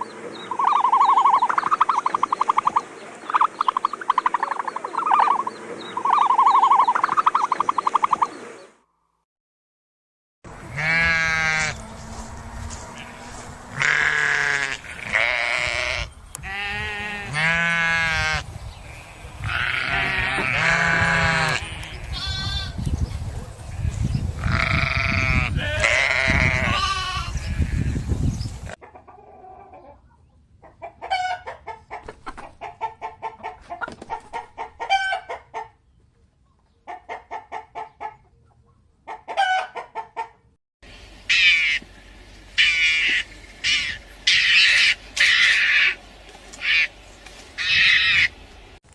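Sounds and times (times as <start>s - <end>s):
hens clucking: 0.0s - 8.6s, 28.6s - 35.8s, 36.6s - 40.5s
bird calls: 0.0s - 8.8s, 40.9s - 48.8s
goats bleating: 10.6s - 12.2s, 12.8s - 22.8s, 23.8s - 28.0s.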